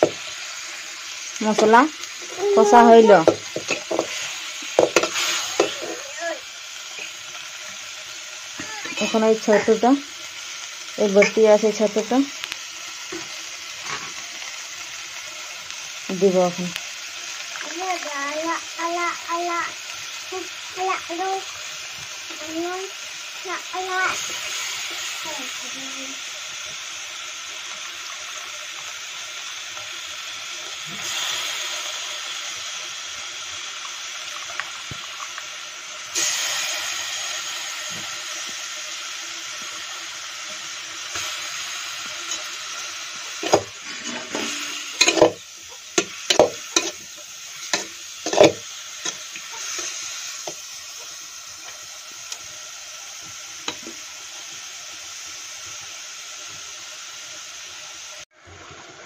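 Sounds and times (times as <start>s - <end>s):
mushrooms sizzling in oil: 0.0s - 59.0s
spoon clacking and scraping pan: 3.2s - 6.0s, 11.0s - 11.7s, 42.0s - 52.4s.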